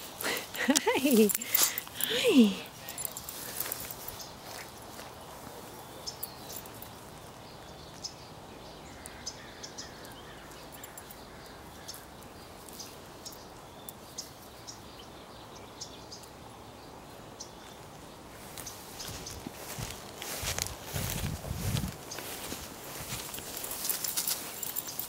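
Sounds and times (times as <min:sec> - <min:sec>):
small birds chirping: 0:00.0 - 0:25.0
steady background noise: 0:00.0 - 0:25.0.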